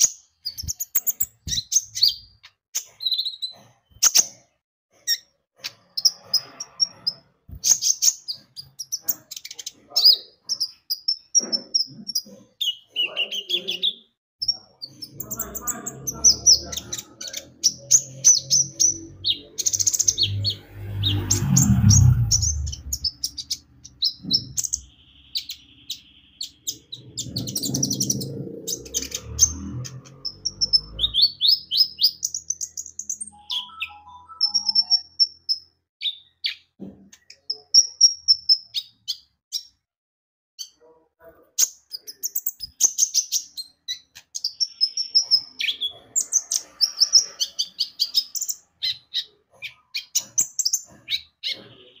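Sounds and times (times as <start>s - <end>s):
sunbird chirps and trills: 5.0s - 39.8s
low rumbles: 20.1s - 25.0s.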